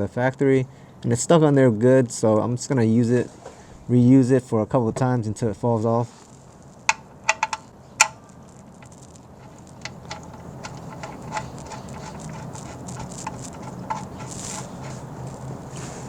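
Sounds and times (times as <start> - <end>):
metal drain plug clicks and taps: 6.9 - 8.2, 9.8 - 14.3.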